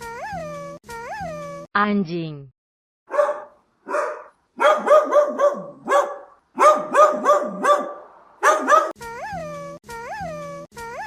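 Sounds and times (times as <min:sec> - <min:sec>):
dog barking: 0:03.1 - 0:09.0.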